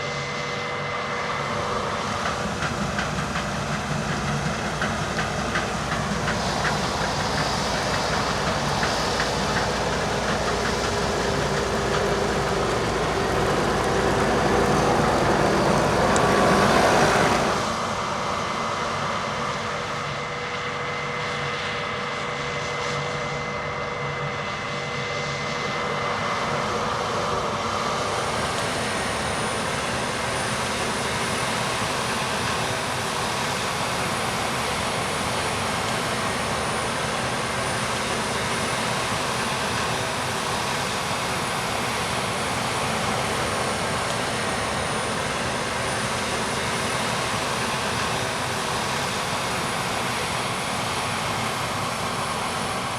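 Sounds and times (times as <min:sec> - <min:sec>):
combine harvester working: 0:02.8 - 0:17.8, 0:28.6 - 0:52.9.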